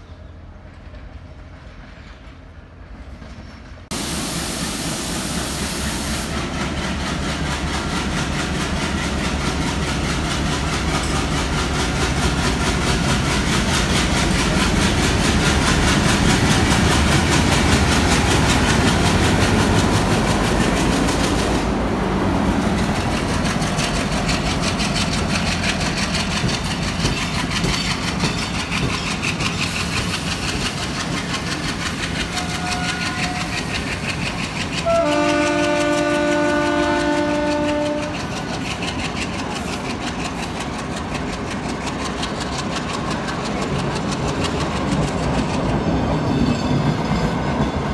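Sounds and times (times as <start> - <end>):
train wheels on rails: 0.0 - 47.9
multi-tone train horn: 32.3 - 33.6, 34.8 - 38.4.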